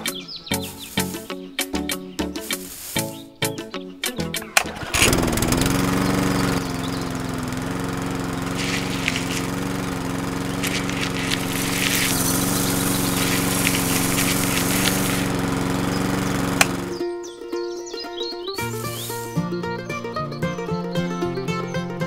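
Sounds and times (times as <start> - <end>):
seeds rattling in drum: 0.7 - 1.3, 2.4 - 3.1, 8.2 - 16.9, 18.6 - 19.4
small motor humming: 4.7 - 17.0, 18.6 - 19.5.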